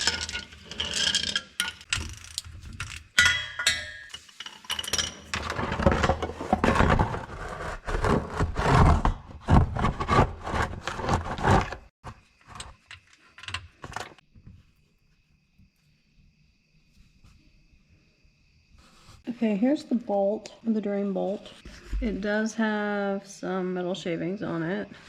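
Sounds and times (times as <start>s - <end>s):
metal tool clinks and clatter: 2.8s - 6.2s.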